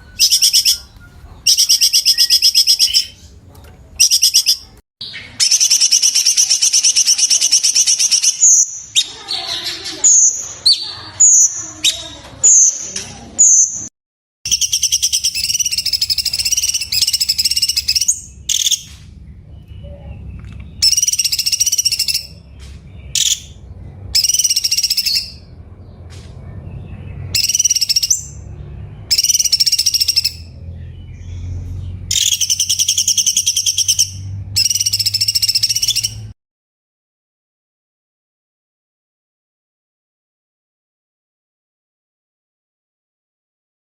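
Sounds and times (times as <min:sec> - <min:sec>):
bird singing rattling trills: 0:00.0 - 0:03.4, 0:04.0 - 0:12.8, 0:14.5 - 0:26.0, 0:26.8 - 0:36.3.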